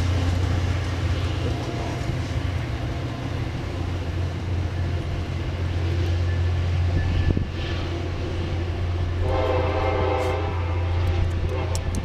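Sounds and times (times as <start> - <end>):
train engine drone: 0.0 - 12.0
train horn blast: 9.1 - 12.0.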